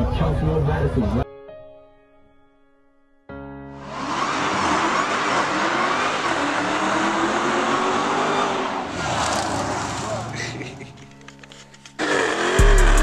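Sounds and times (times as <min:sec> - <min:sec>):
car engine revving hard: 0:03.8 - 0:10.3, 0:12.0 - 0:13.0.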